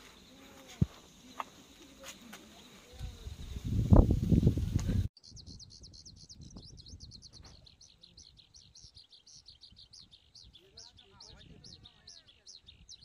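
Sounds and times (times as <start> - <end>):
high-pitched bird chirps: 5.2 - 13.0.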